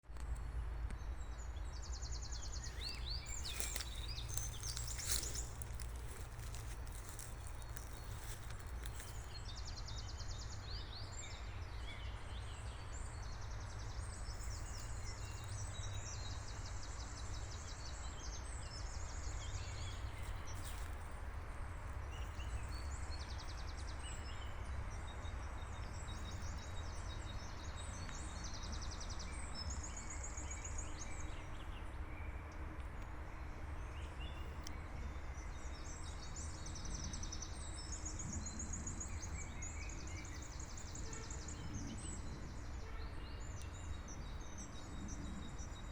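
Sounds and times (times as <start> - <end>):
birds chirping: 1.8 - 10.6.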